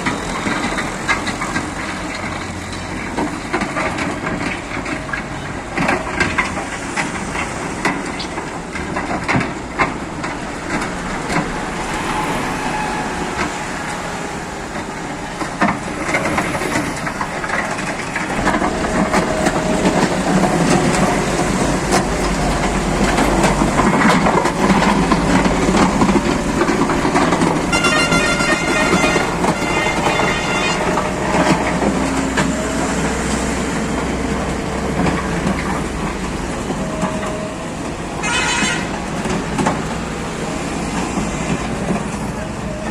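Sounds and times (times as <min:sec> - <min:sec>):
metallic clanks and knocks: 0:00.0 - 0:32.6
diesel engines running: 0:00.0 - 0:42.9
high pitched tone: 0:18.4 - 0:23.8.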